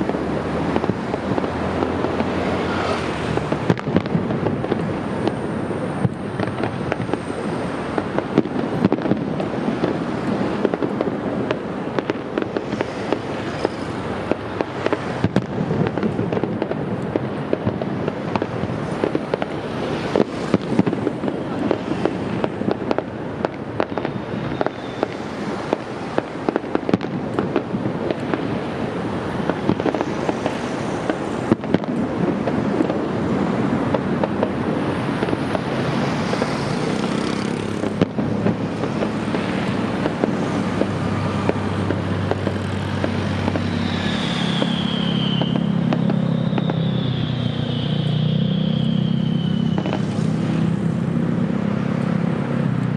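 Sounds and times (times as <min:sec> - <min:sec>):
fireworks bangs and crackling: 0:00.0 - 0:52.9
high falling whistles: 0:23.9 - 0:25.3, 0:43.2 - 0:50.3.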